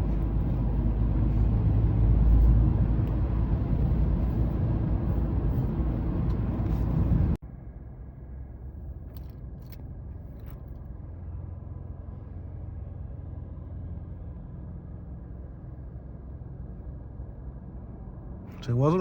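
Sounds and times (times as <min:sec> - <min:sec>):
car cabin road and engine rumble: 0:00.0 - 0:19.0.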